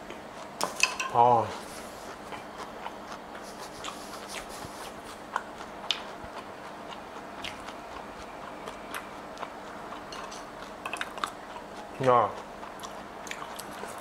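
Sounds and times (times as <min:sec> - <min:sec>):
person chewing crunchy food: 0:01.5 - 0:14.0.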